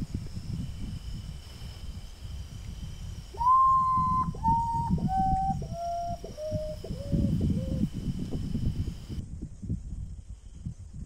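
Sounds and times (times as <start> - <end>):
bird whistling descending notes: 3.4 - 7.8.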